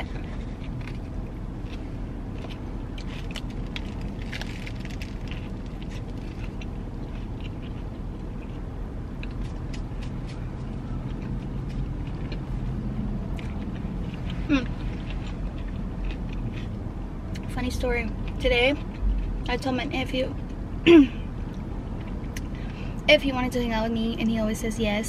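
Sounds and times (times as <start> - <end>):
biting and chewing food: 0.0 - 19.5
low rumble inside car: 0.0 - 25.0.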